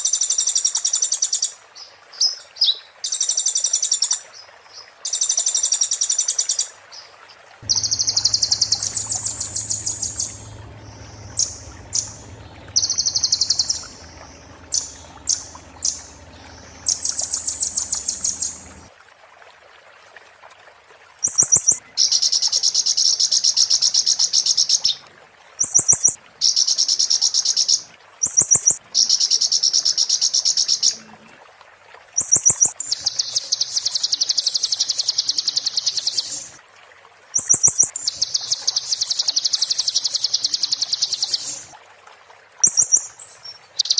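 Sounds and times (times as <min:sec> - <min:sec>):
low steady hum: 0:07.6 - 0:18.9
songbird rattling trills: 0:07.6 - 0:18.9.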